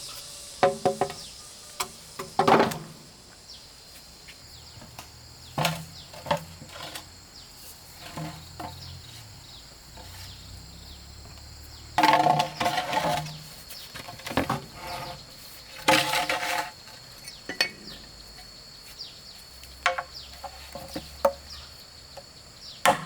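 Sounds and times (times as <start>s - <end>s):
insects droning: 0.0s - 23.0s
wood knocking and clattering: 2.2s - 3.0s, 12.0s - 15.1s, 19.8s - 21.5s.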